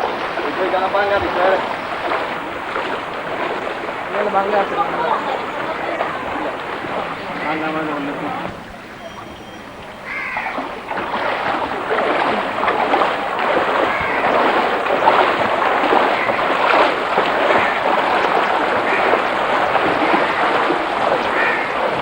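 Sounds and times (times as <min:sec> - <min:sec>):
water rushing and splashing: 0:00.0 - 0:22.0.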